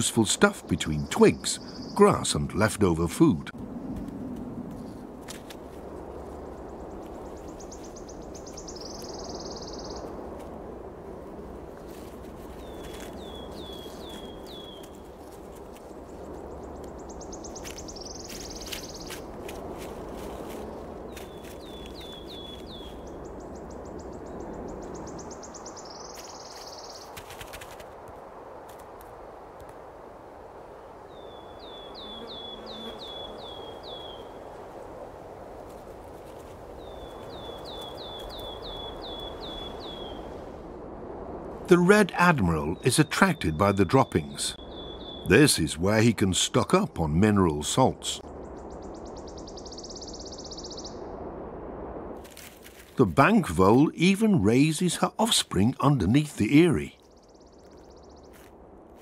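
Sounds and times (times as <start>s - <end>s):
songbirds chirping and trilling: 0.0s - 27.8s, 28.4s - 40.8s, 41.6s - 51.3s, 52.7s - 58.7s
outdoor ambient hiss: 0.0s - 59.0s
small clicks and rustles: 26.1s - 29.8s.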